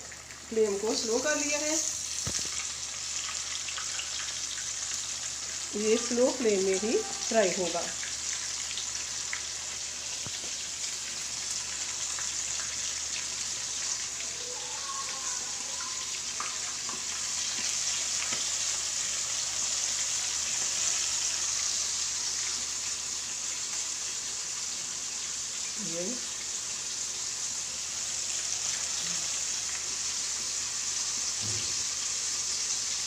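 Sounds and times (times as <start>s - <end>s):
chicken sizzling in hot oil: 0.0s - 33.0s
oil crackling: 1.8s - 5.1s.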